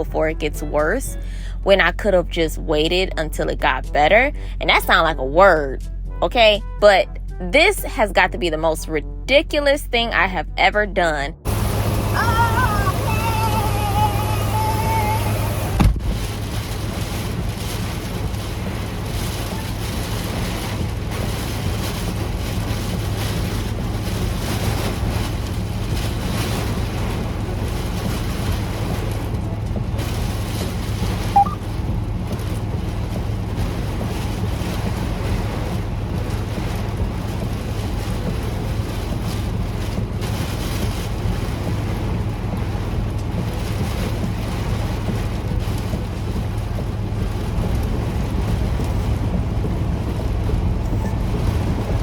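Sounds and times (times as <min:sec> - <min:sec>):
truck engine humming: 0:00.0 - 0:52.0
heavy rain falling: 0:11.4 - 0:52.0
short rising chirp: 0:31.4 - 0:31.6.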